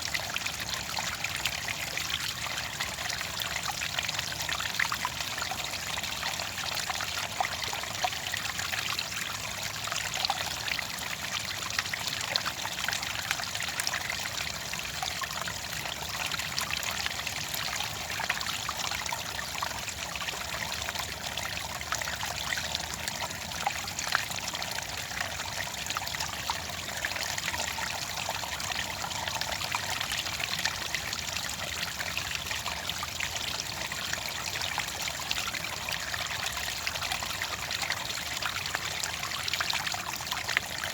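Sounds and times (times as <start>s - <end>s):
water trickling and splashing: 0.0s - 40.9s.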